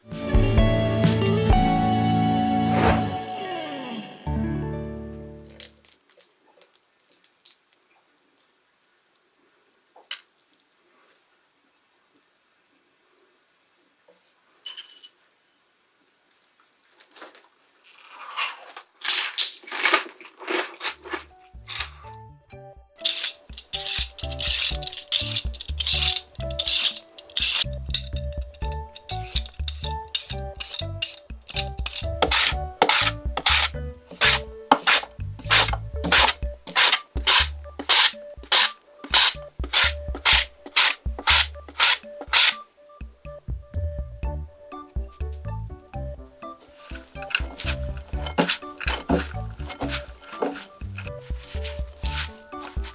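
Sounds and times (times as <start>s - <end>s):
background music: 0.0s - 5.8s, 21.4s - 52.9s
short metallic clink: 23.1s - 33.7s
tool scraping raw potato: 23.1s - 42.6s, 46.8s - 52.9s.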